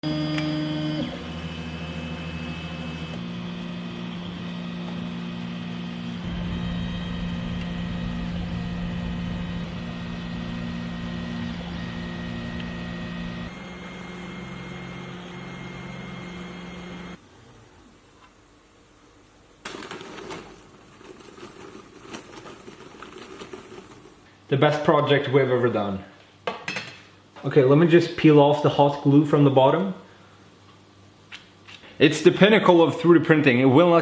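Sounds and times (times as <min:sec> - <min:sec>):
stepper motors whining: 0:00.0 - 0:17.2.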